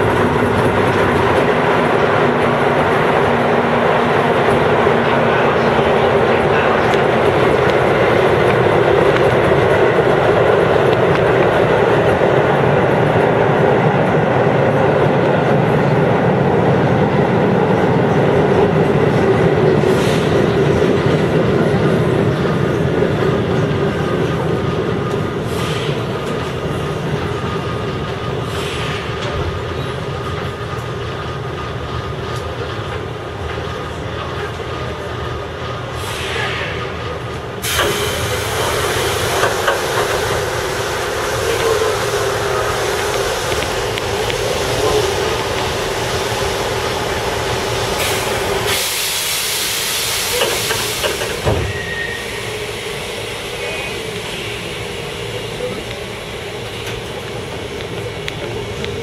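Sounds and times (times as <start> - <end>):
train running rumble: 0.0 - 59.0
loud hissing noise: 35.9 - 59.0.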